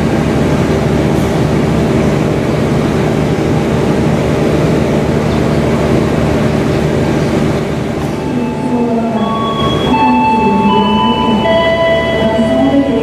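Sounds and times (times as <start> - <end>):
train wheels rumbling: 0.0 - 13.0
ringing tones: 8.2 - 13.0.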